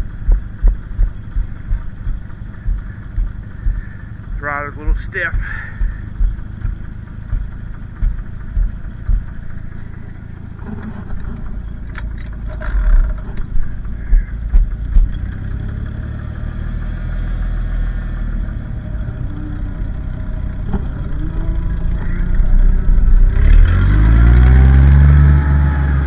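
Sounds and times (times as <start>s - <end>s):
tractor engine idling: 0.0s - 26.0s
sharp clicks: 0.2s - 4.3s.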